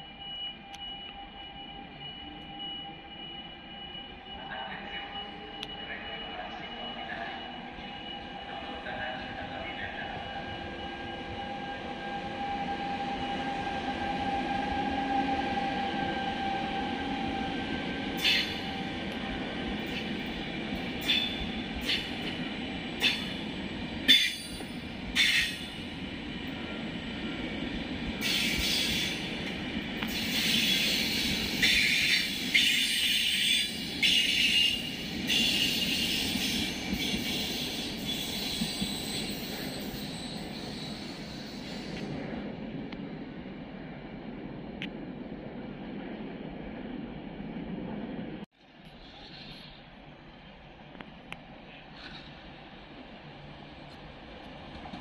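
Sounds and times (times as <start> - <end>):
high-pitched wheel squeal: 30.1 - 41.8.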